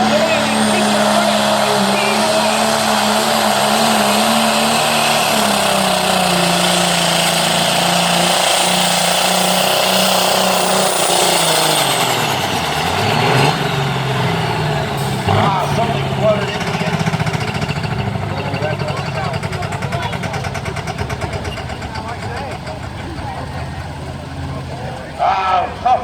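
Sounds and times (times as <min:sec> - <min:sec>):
turbo whine: 0:00.0 - 0:17.0
tractor diesel engine under load: 0:00.0 - 0:26.0.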